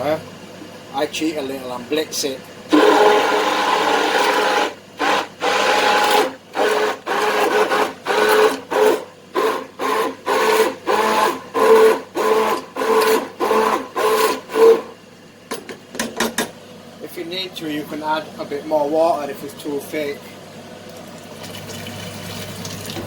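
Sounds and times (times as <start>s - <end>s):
electric blender running: 2.7s - 15.0s, 21.3s - 23.0s.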